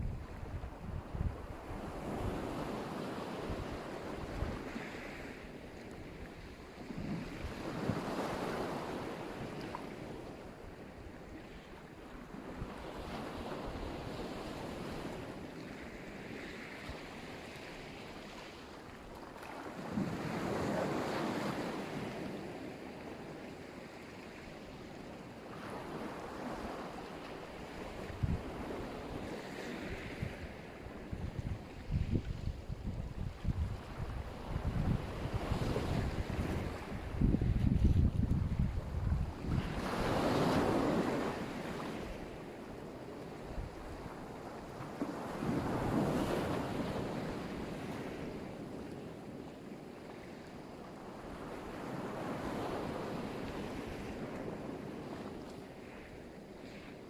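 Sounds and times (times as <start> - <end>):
wind buffeting microphone: 0.0 - 2.7, 27.7 - 42.1
waves washing onto shore: 0.0 - 57.0.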